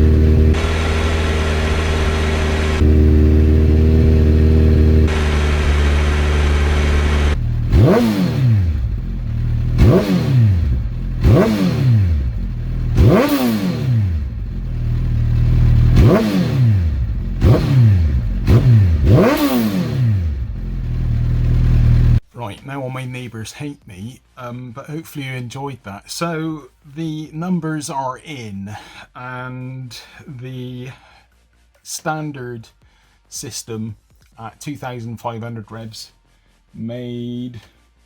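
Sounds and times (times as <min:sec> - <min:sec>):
motorcycle engine revving: 0:00.0 - 0:22.2.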